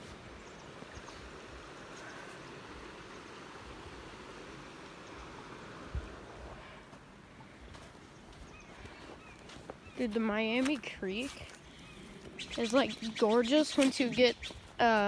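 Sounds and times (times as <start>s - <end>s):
creek water rushing: 0.0s - 7.6s.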